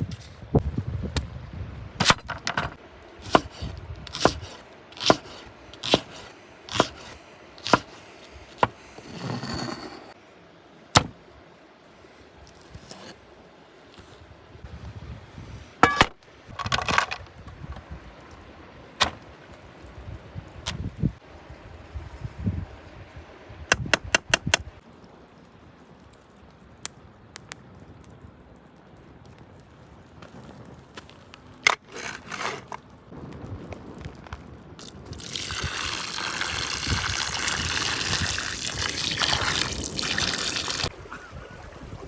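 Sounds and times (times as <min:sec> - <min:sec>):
chopping strokes: 0:03.2 - 0:09.9
scraping: 0:05.8 - 0:10.2, 0:30.3 - 0:33.0.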